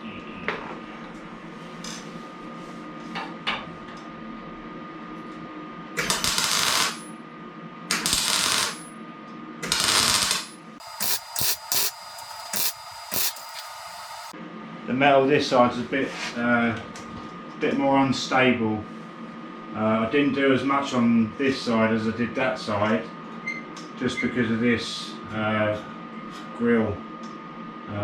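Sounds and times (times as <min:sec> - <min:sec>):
short crackles and clicks: 0:09.7 - 0:14.3
harsh metalworking bursts: 0:09.8 - 0:14.3.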